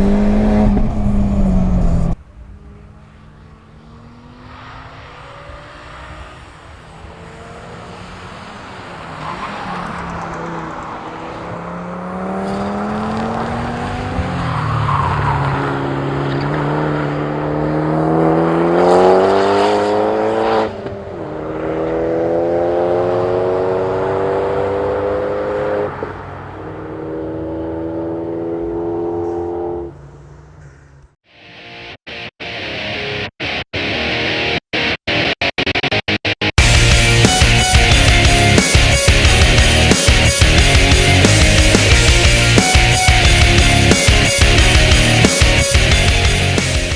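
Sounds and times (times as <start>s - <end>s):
car engine revving through gears: 0.0s - 30.4s, 36.6s - 46.9s.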